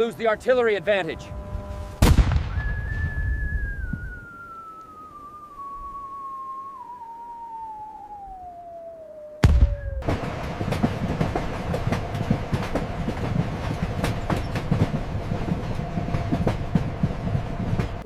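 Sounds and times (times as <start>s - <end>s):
constant hum: 0.0s - 18.0s
loud thud: 2.0s - 3.4s, 9.4s - 11.2s
tone falling in pitch: 2.6s - 10.1s.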